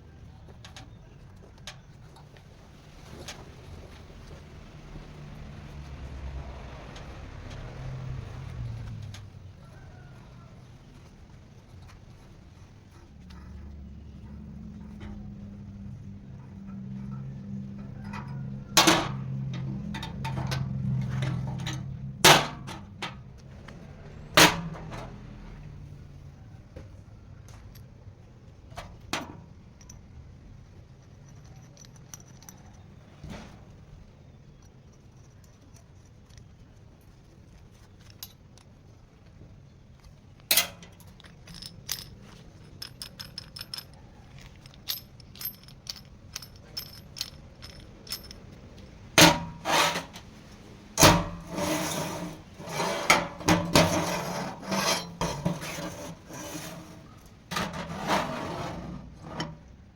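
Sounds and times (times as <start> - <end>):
metal clanks and knocks: 13.0 - 25.6, 40.4 - 59.7
metal scraping: 40.5 - 59.7.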